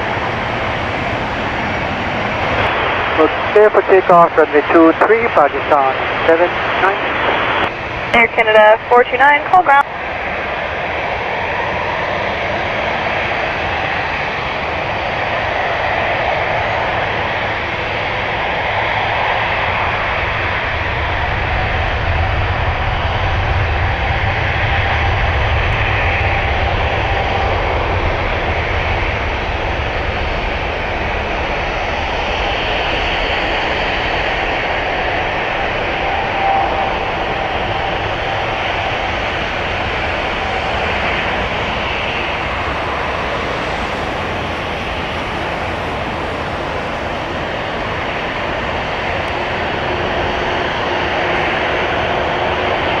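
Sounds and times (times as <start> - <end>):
jet engines rumbling: 0.0 - 53.0.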